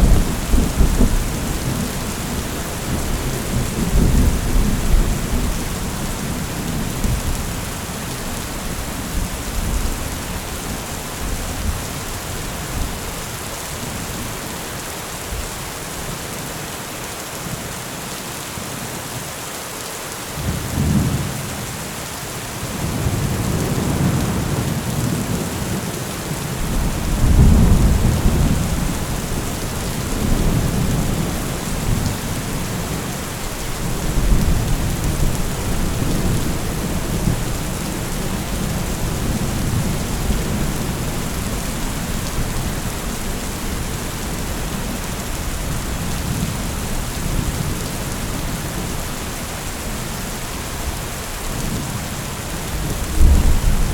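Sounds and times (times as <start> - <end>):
rolling thunder: 0.0 - 7.6, 26.6 - 44.9, 52.7 - 53.9
steady rain falling: 0.0 - 53.9.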